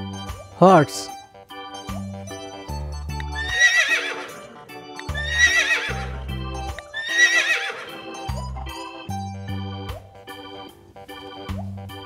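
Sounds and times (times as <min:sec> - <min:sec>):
background music: 0:00.0 - 0:12.0
horse whinnying: 0:03.3 - 0:06.3, 0:06.9 - 0:08.1.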